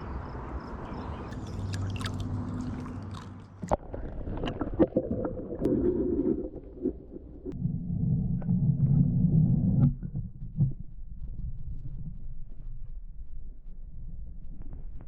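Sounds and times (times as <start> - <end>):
water rushing: 1.3 - 7.6.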